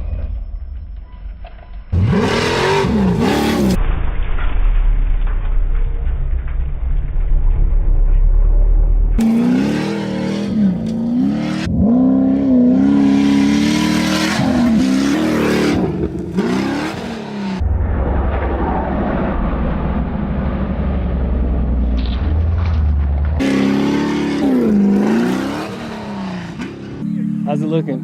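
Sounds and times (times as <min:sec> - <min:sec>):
truck engine revving: 0:01.9 - 0:03.8, 0:09.1 - 0:28.0.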